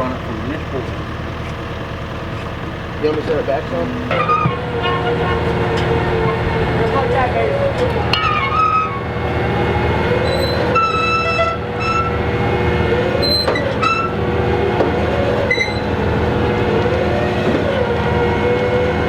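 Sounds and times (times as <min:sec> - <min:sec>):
diesel engine running: 0:00.0 - 0:19.0
high-pitched squeaks and squeals: 0:04.1 - 0:12.3, 0:13.0 - 0:14.2, 0:15.1 - 0:16.0.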